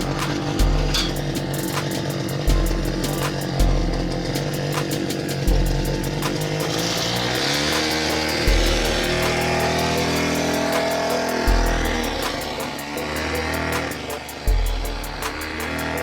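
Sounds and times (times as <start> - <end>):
music with heavy bass: 0.0 - 16.0
mini-bike engine revving: 6.6 - 16.0.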